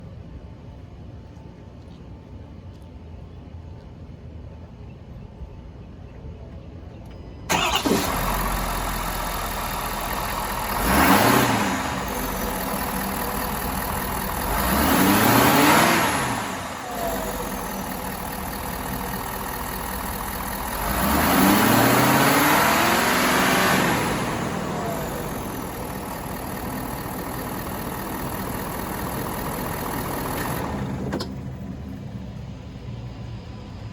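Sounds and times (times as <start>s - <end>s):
truck engine starting and revving: 7.5s - 32.7s.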